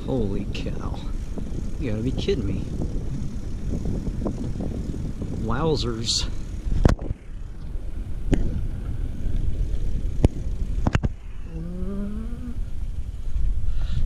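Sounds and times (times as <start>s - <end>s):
wind buffeting microphone: 0.0s - 14.0s
rising tone: 11.4s - 12.7s.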